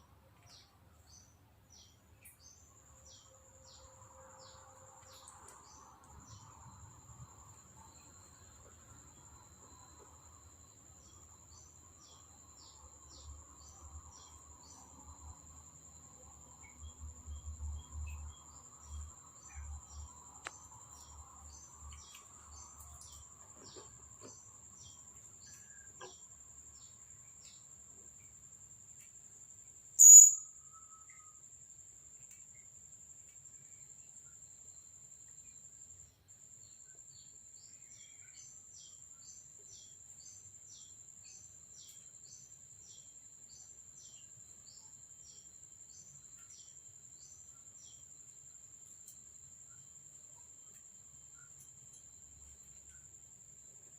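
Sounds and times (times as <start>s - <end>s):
insect drone: 1.1s - 53.9s
small birds chirping: 30.0s - 31.3s.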